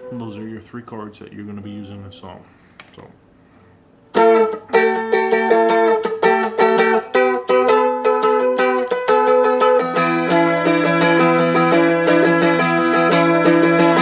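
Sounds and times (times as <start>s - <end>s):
dulcimer strumming: 4.1s - 14.0s.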